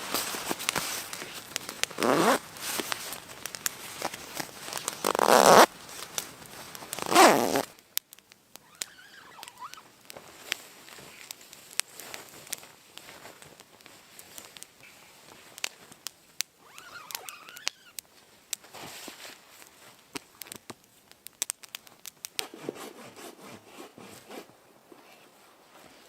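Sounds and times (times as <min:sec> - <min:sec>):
faint clicks: 0:00.1 - 0:18.7, 0:19.5 - 0:22.4
zipper being pulled: 0:01.9 - 0:02.4, 0:05.0 - 0:05.7, 0:07.0 - 0:07.7.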